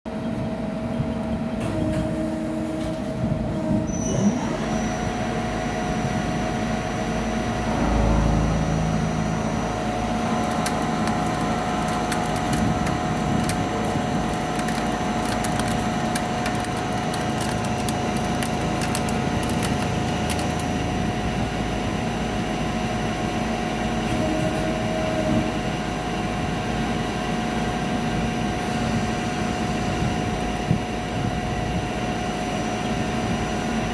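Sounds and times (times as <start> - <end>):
high whine: 6.8 - 15.4
fast crackling ticks: 10.1 - 21.0.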